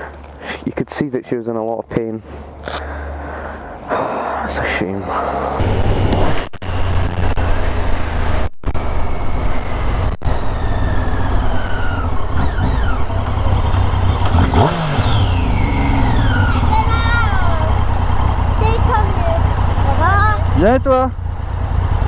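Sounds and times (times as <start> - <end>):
falling whines: 5.0 - 18.6
motorcycle engine running: 5.6 - 22.0.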